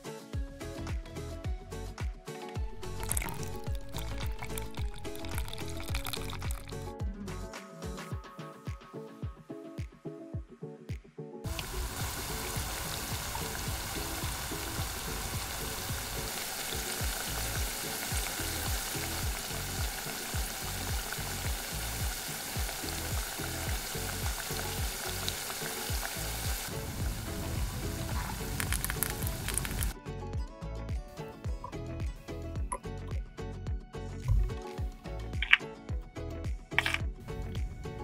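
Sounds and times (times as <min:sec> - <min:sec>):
food sizzling in hot oil: 0:02.7 - 0:06.8, 0:11.5 - 0:30.0.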